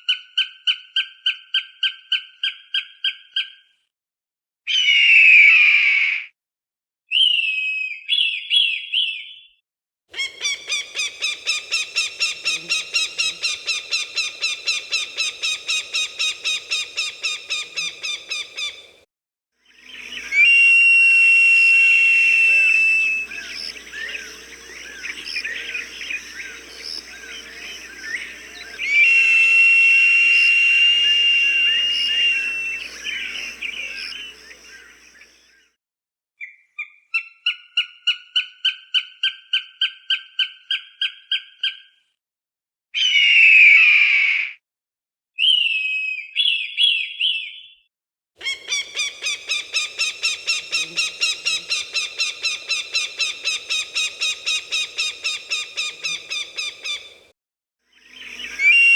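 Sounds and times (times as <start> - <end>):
falcon chattering calls: 10.2 - 18.9, 22.4 - 34.5, 48.4 - 57.1
falcon calls: 10.2 - 19.0, 19.9 - 35.1, 48.4 - 57.2
small birds chirping: 10.2 - 19.0, 22.2 - 35.3, 48.4 - 57.3
falcon screams: 20.0 - 34.6, 58.6 - 58.9.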